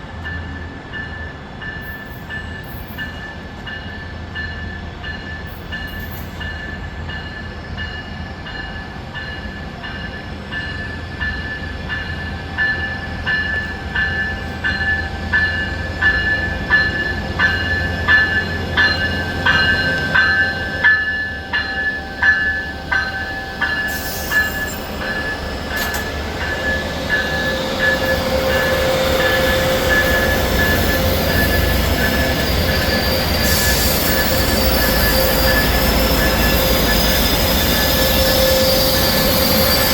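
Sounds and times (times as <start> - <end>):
train passing: 0.0 - 39.9
crossing bell ringing: 0.2 - 39.9
wheels squealing on rail: 10.5 - 39.9.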